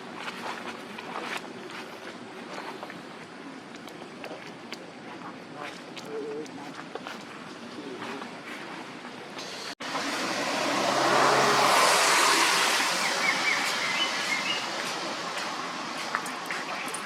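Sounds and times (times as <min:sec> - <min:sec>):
vehicle passing by: 0:09.8 - 0:16.9.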